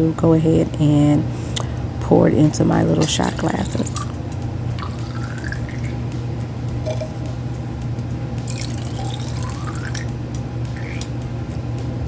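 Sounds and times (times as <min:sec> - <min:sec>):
low hum: 0:01.7 - 0:12.0
juice pouring into glasses: 0:03.4 - 0:04.2, 0:04.8 - 0:06.1, 0:08.4 - 0:10.1.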